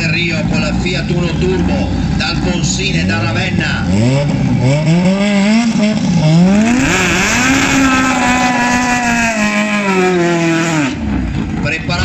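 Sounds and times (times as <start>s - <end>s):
car engine revving hard: 0.0s - 11.7s.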